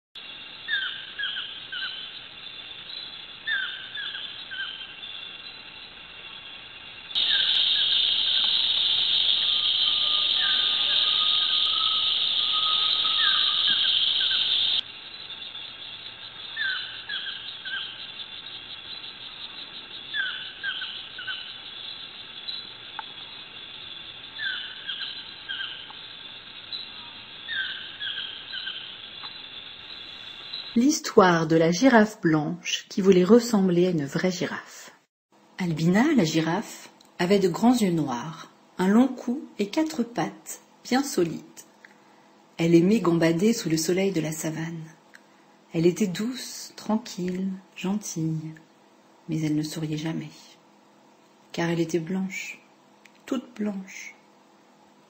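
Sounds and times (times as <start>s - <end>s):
high-pitched insect buzz: 0.2s - 31.1s
songbirds chirping: 0.2s - 32.2s, 35.7s - 55.0s.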